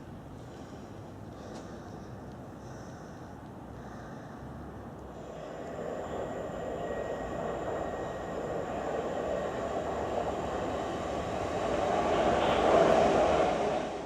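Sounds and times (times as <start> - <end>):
train running on tracks: 4.4 - 14.0.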